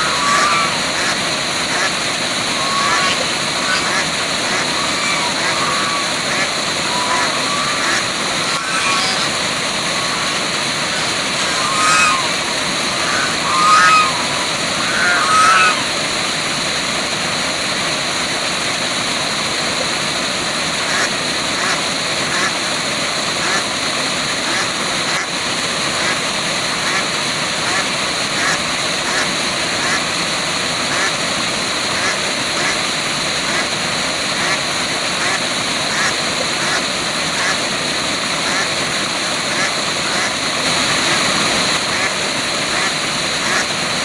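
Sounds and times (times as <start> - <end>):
short bird calls: 0.0 - 0.8, 2.6 - 9.3, 9.9 - 15.9
waterfall rushing: 0.0 - 44.0.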